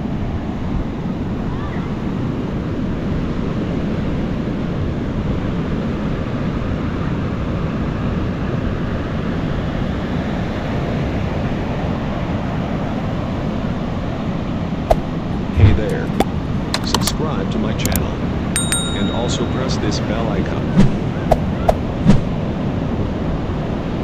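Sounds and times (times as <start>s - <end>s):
waves breaking on a beach: 0.0s - 14.8s.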